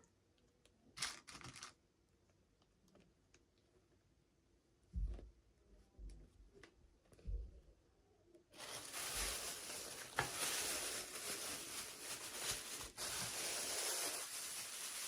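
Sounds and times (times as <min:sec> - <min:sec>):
packaging rustling: 0:01.0 - 0:01.7, 0:08.6 - 0:15.0.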